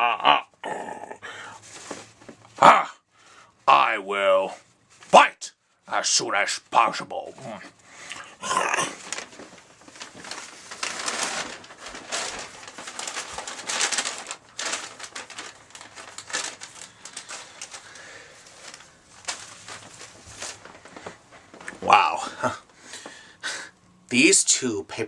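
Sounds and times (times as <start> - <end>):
paper bags rustling and crinkling: 1.4 - 2.6, 4.5 - 23.2.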